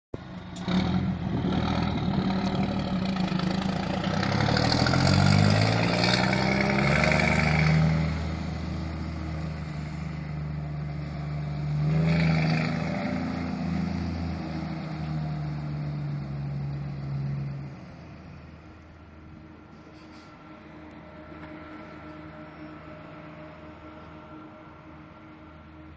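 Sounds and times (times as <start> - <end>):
truck diesel engine shifting gears: 0.2 - 18.3.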